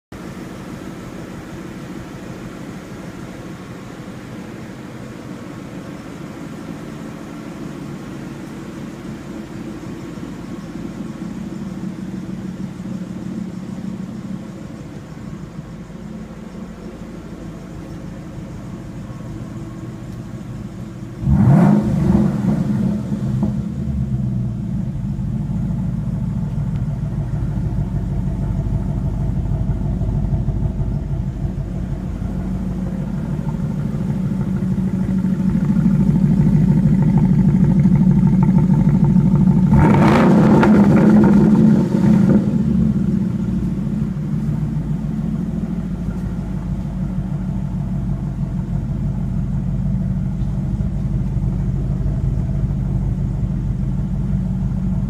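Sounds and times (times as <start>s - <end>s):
car engine idling: 0.0s - 55.0s
engine revving: 21.1s - 25.6s, 28.6s - 48.4s.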